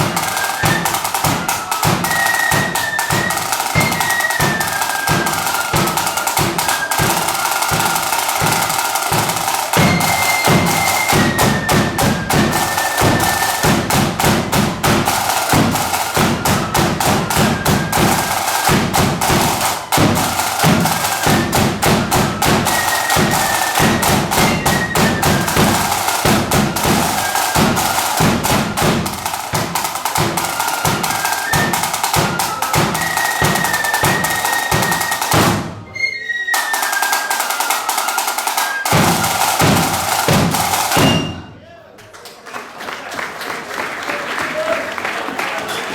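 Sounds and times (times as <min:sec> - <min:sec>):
rapid snare drumming: 0:00.0 - 0:35.9, 0:36.6 - 0:41.6
high flute melody: 0:00.0 - 0:41.6.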